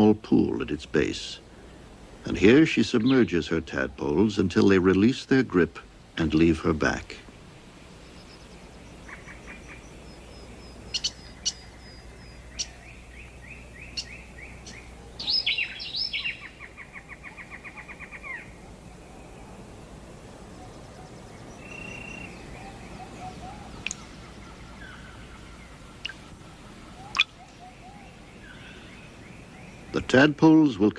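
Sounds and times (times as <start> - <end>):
loud cluster of bird calls: 0.0 - 30.9
rapid pulsed bird trills: 7.6 - 30.1
bird chirps: 7.9 - 19.7, 20.4 - 30.8.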